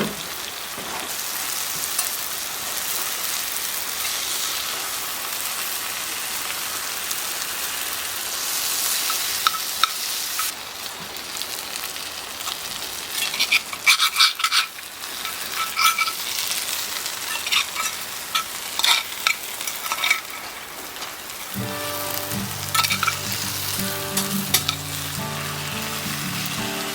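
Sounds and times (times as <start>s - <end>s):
food sizzling in a pan: 0.0s - 26.9s
utensil scraping a pan: 13.2s - 16.4s, 17.2s - 20.6s, 22.7s - 24.9s.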